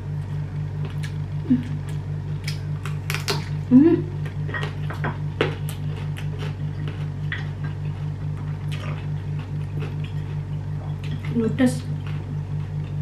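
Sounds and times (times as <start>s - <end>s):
pulsing low hum: 0.0s - 13.0s
chewing smacks and clicks: 5.4s - 11.4s.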